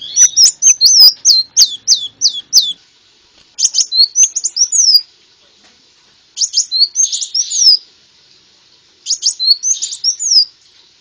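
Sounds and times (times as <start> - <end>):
bird twittering: 0.0 - 2.8, 3.6 - 5.0, 6.4 - 7.8, 9.0 - 10.5
sunbird whistled song: 0.0 - 2.8, 3.6 - 5.1, 6.4 - 7.9, 9.0 - 10.6.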